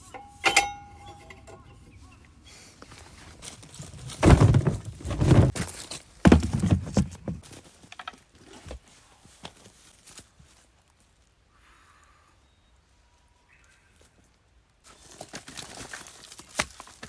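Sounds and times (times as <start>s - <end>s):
dull thumps and rustling: 3.2s - 7.7s.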